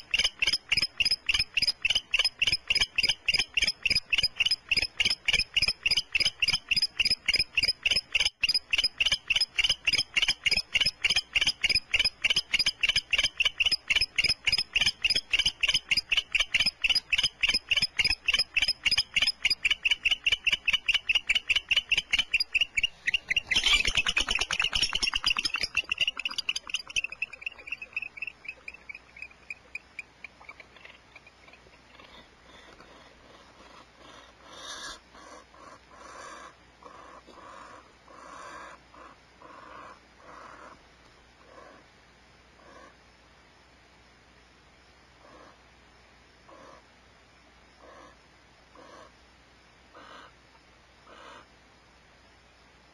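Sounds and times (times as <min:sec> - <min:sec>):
animal chirping calls: 0:00.0 - 0:40.8.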